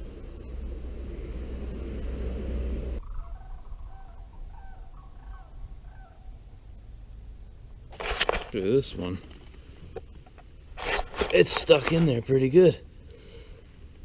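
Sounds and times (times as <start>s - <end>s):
steady rushing noise: 0.0s - 4.5s.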